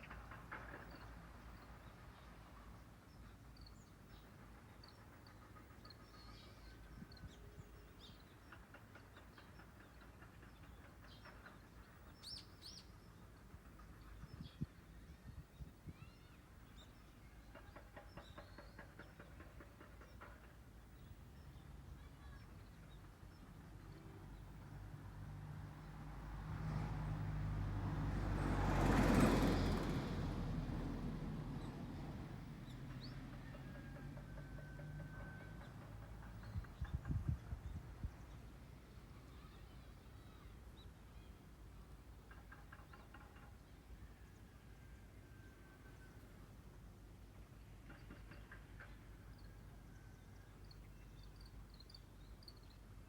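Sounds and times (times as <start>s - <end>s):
car driving past: 24.2s - 36.4s.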